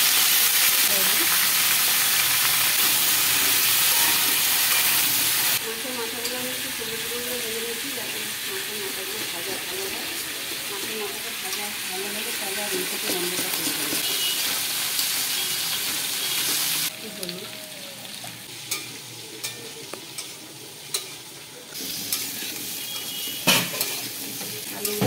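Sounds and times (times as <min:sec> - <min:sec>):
oil sizzling in wok: 0:00.0 - 0:25.0
metal spatula scraping and tapping: 0:18.7 - 0:21.2, 0:22.1 - 0:25.0
spatula clanking on pan: 0:18.7 - 0:21.2, 0:22.0 - 0:25.0.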